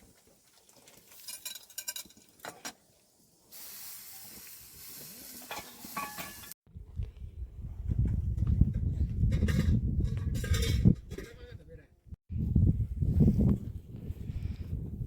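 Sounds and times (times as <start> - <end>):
food sizzling: 0.0 - 6.6
utensils clinking on a pot: 0.9 - 2.8, 5.5 - 6.6.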